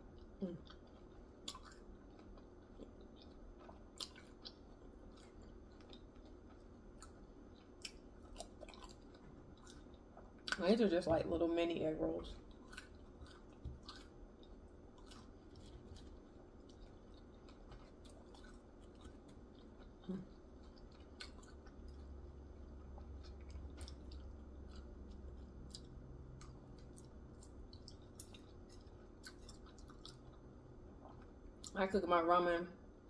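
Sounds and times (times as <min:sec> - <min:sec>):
faint crunchy chewing: 0:00.0 - 0:10.7, 0:12.2 - 0:31.8.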